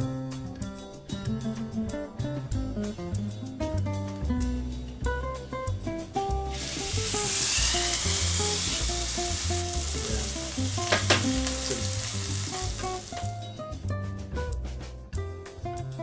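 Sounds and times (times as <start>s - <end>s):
steak sizzling in a pan: 6.4s - 13.4s.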